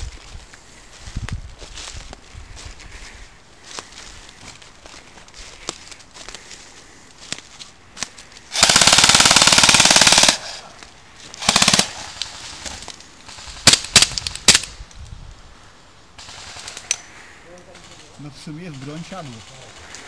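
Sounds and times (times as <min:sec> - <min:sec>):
airsoft gun bursts: 0:08.5 - 0:10.6, 0:11.4 - 0:12.4.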